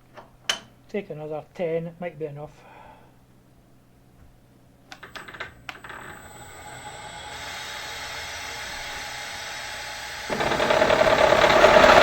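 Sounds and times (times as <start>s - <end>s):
milling machine running: 9.3s - 12.0s.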